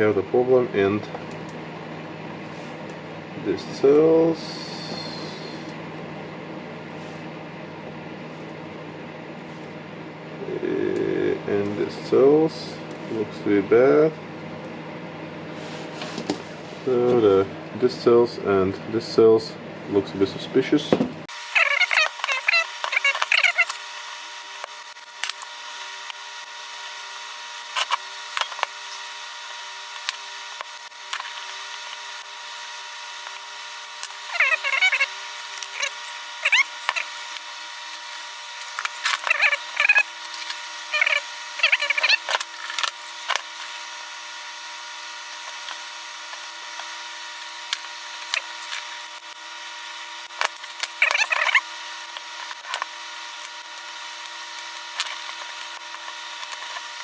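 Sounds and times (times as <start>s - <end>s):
steady hum: 0.0s - 20.6s, 21.2s - 57.0s
tool scraping: 21.3s - 57.0s.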